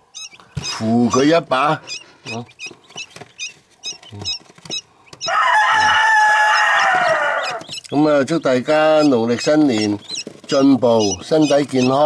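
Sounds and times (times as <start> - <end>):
chicks peeping: 0.0 - 12.0
fowl crowing: 5.2 - 7.8.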